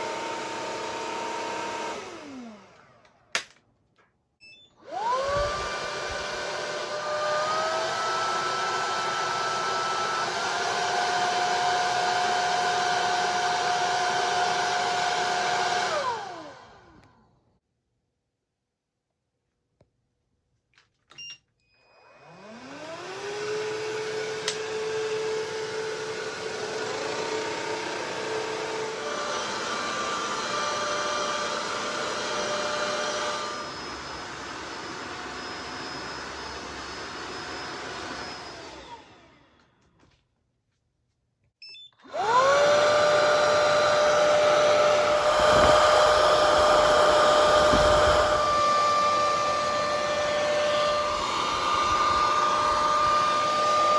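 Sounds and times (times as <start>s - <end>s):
floor cleaner motor whine: 0.0s - 3.5s, 4.8s - 17.3s, 22.0s - 40.2s, 42.0s - 53.9s
floor cleaner beep: 4.4s - 4.8s, 21.1s - 21.4s, 41.6s - 42.1s.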